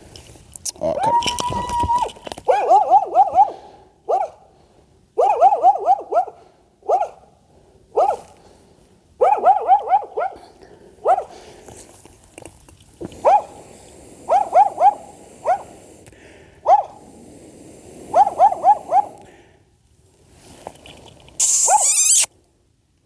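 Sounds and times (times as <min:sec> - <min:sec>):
dog barking: 0:02.5 - 0:04.4, 0:05.2 - 0:07.3, 0:08.0 - 0:08.3, 0:09.2 - 0:11.3, 0:13.2 - 0:13.6, 0:14.3 - 0:15.7, 0:16.6 - 0:17.0, 0:18.1 - 0:19.2.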